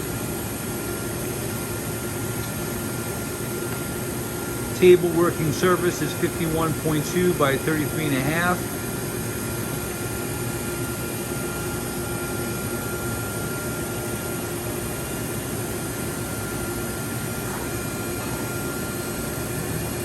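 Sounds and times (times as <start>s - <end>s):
machine spindle humming: 0.0s - 20.0s.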